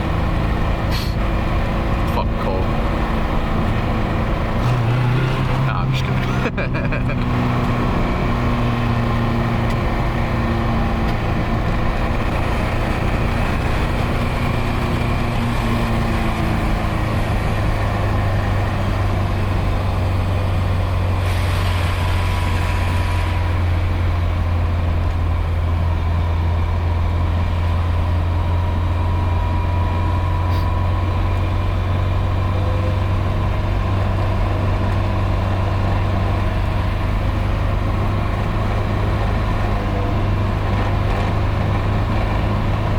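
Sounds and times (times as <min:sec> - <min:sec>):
car engine droning exhaust: 0:00.0 - 0:42.9
brief hiss: 0:00.9 - 0:01.2.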